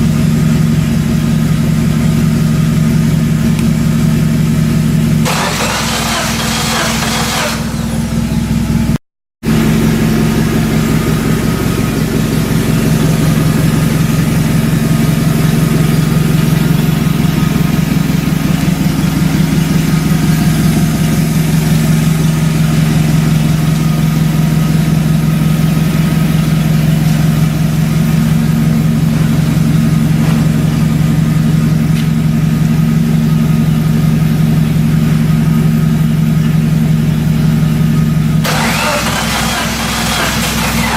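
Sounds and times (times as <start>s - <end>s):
car engine idling: 0.0s - 40.9s
hiss: 5.3s - 8.0s.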